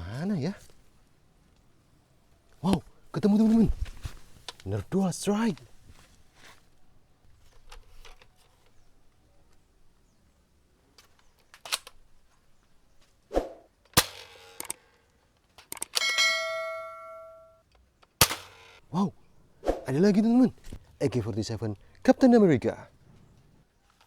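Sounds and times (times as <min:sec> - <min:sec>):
plastic toy blaster clicks and snaps: 0:13.9 - 0:14.8, 0:15.6 - 0:16.0
metallic clang ringing: 0:16.0 - 0:17.6.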